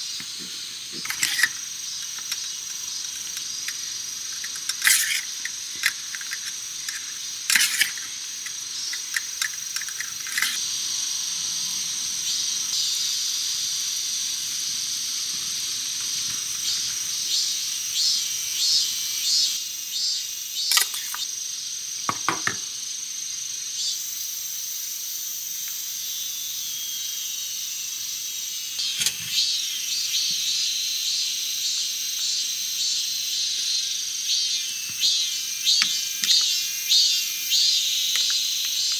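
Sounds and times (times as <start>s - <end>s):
high-pitched insect chirring: 0.0s - 15.2s, 25.2s - 38.9s.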